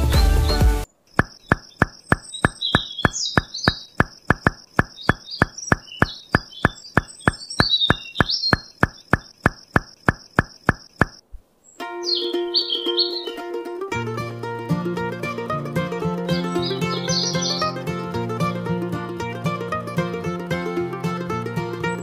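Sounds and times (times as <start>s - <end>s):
music: 0.0s - 0.9s, 11.8s - 22.0s
dry ticking: 0.9s - 11.4s
bird chirps: 0.9s - 13.4s, 16.4s - 17.8s.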